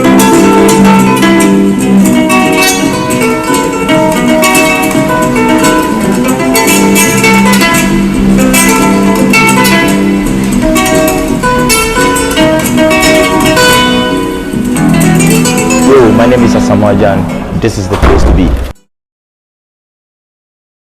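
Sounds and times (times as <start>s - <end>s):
guitar plucked and strummed: 0.0s - 18.9s.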